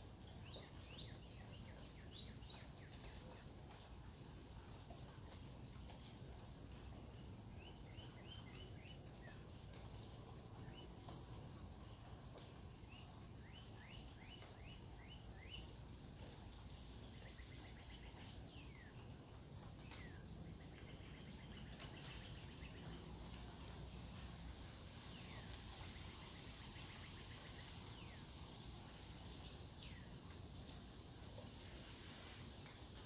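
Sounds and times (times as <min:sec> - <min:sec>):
faint birdsong: 0:00.0 - 0:33.0
low background noise: 0:00.0 - 0:33.0.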